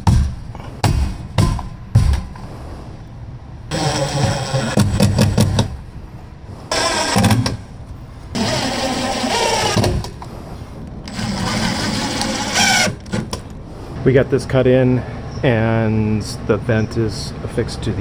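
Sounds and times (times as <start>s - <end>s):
power tool cutting through wall: 3.7s - 5.8s, 6.7s - 10.3s, 11.1s - 13.4s.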